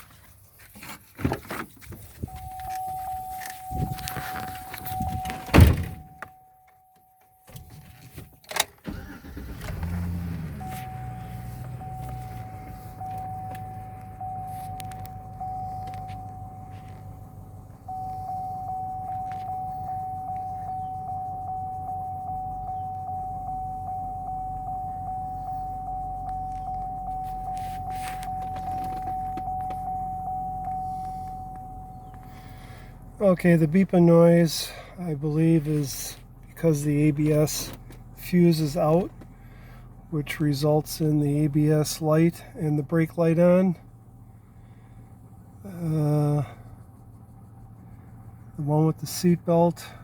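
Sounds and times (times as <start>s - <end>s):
dashboard warning chime beeping: 2.2s - 7.7s, 8.9s - 39.2s
truck engine starting and idling: 7.5s - 50.0s.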